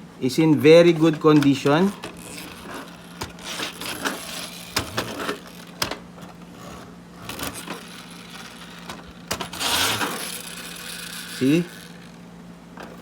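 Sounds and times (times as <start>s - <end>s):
toy truck rubbing and scraping: 0.8s - 12.2s, 12.8s - 13.0s
sharp clicks of toy parts: 1.4s - 6.0s, 6.6s - 12.2s.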